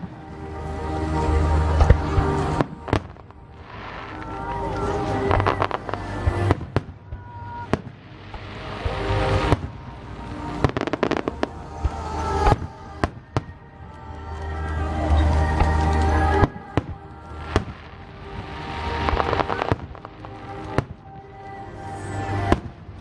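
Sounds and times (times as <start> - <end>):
music playing: 0.0 - 23.0.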